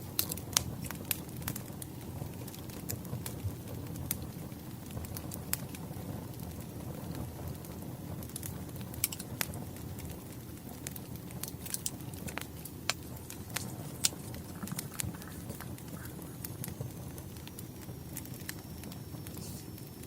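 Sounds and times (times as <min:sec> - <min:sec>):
burning logs popping: 0:00.0 - 0:20.0
wood fire crackling: 0:00.0 - 0:20.0.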